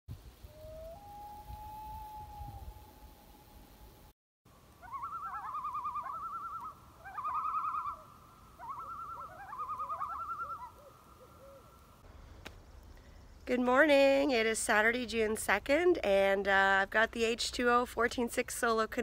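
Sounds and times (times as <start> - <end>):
bird quavering trills: 4.8 - 11.8.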